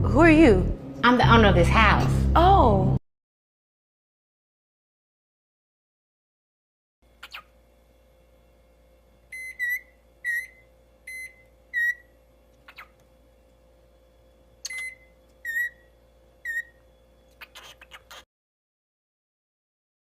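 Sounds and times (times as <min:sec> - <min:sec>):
short high electronic beeps: 0:09.4 - 0:12.0.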